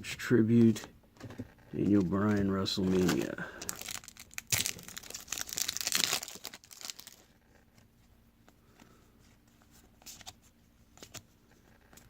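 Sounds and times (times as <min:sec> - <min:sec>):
wrapper tearing and crinkling: 0:02.9 - 0:07.3.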